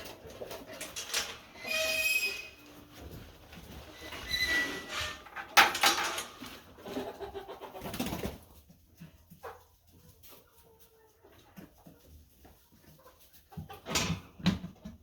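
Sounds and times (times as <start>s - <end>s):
chickens cooing clucks: 6.6s - 8.6s.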